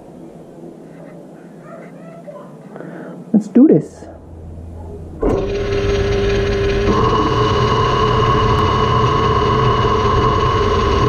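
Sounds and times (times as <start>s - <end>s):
metal lathe humming: 4.2s - 11.0s
lathe tool cutting tone: 4.5s - 11.0s.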